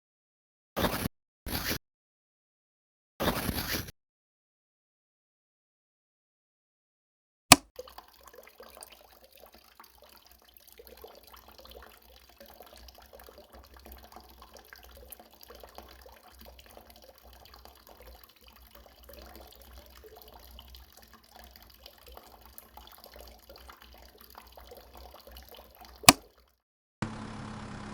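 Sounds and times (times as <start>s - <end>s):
water trickling and splashing: 7.6s - 26.6s.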